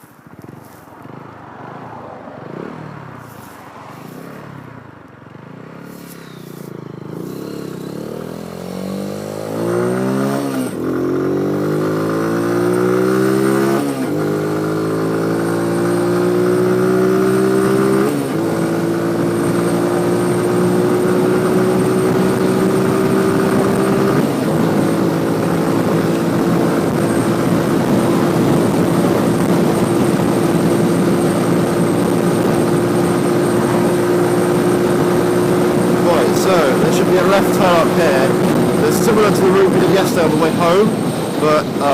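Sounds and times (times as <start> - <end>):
motorcycle engine accelerating: 0.0 - 41.9
rushing wind noise: 7.1 - 41.9.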